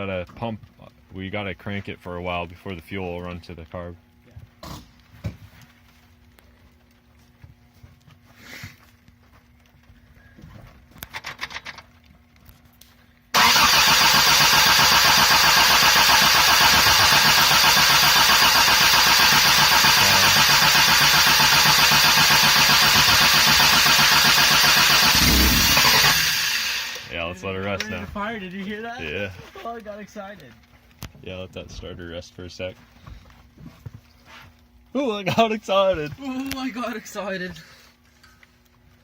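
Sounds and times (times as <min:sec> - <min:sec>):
engine cranking on starter motor: 0:13.4 - 0:27.2.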